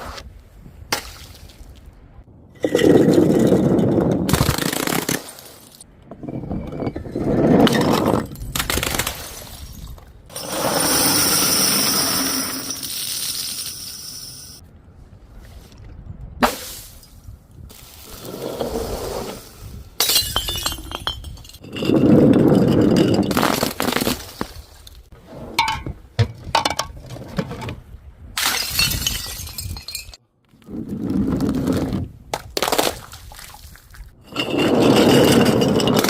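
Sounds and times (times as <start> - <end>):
glass bottles shattering: 7.7 - 14.6, 20.0 - 24.4, 28.4 - 30.2
glass shards tinkling: 10.4 - 14.6, 20.0 - 23.3, 28.6 - 30.2.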